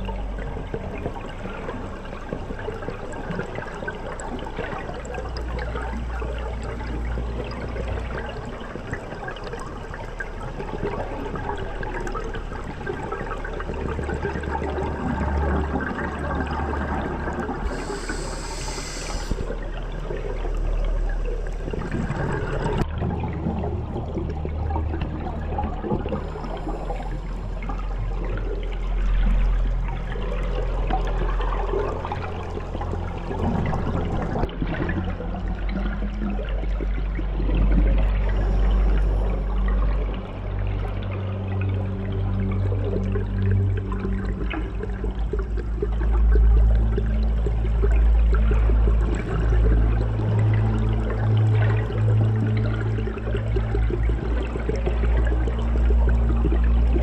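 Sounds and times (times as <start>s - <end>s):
underwater rushing and bubbling water: 0.0s - 57.0s
short hiss: 17.7s - 19.5s.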